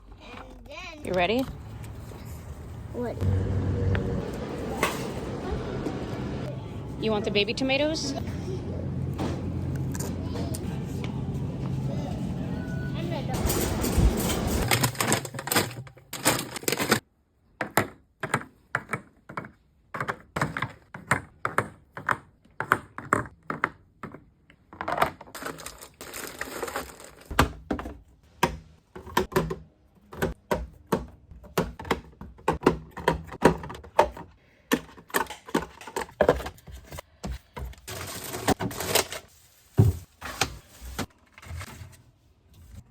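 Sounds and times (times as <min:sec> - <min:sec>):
packaging rustling: 0:25.4 - 0:27.3.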